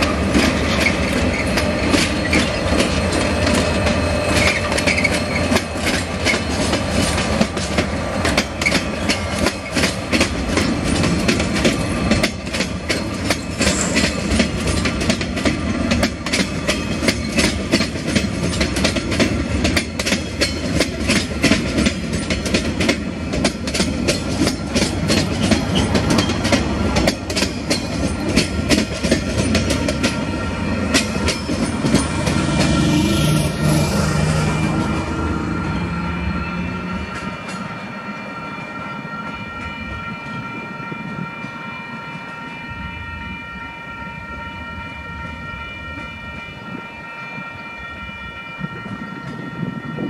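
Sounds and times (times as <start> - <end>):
wheels clicking over rail joints: 0.0 - 33.4
freight train rumbling past: 0.0 - 50.0.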